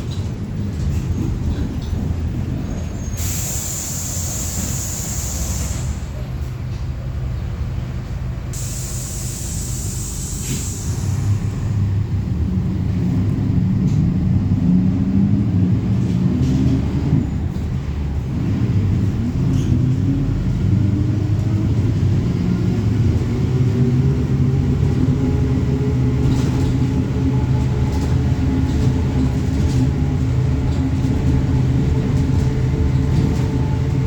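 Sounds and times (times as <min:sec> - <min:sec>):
bus engine rumbling: 0:00.0 - 0:34.0
high hissing: 0:03.2 - 0:06.1, 0:08.6 - 0:11.8.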